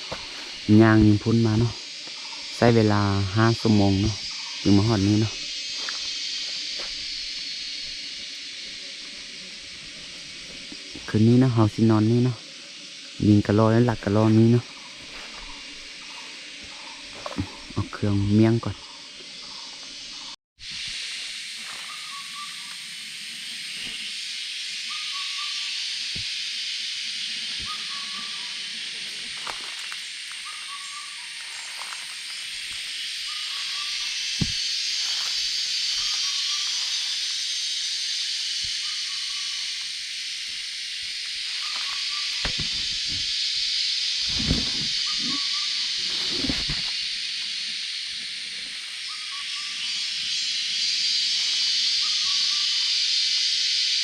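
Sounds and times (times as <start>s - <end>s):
night insects hissing: 0.0s - 54.0s
quail calls: 27.6s - 28.6s, 45.0s - 45.9s, 52.0s - 52.8s
soft rustles and knocks: 42.4s - 43.3s, 46.1s - 46.9s.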